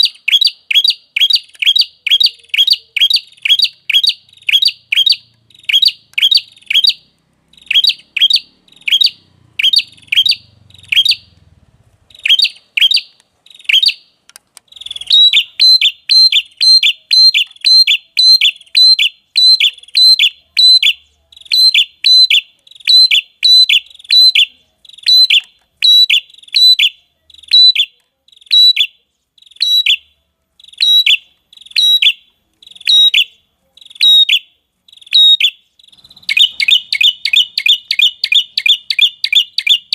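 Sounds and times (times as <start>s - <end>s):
bird high sharp chirps: 0.0s - 11.4s, 12.1s - 39.9s.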